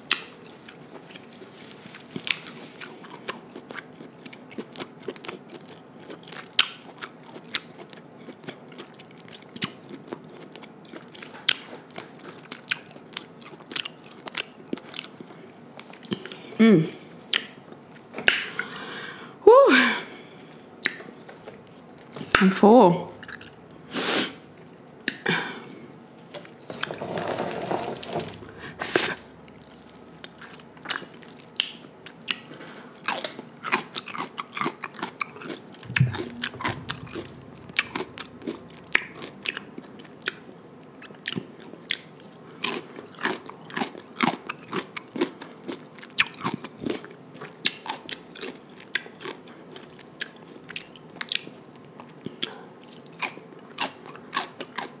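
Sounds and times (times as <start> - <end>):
wet chewing and crunching: 0.0 - 16.5, 23.2 - 23.9, 28.4 - 55.0
low thump: 35.9 - 38.3.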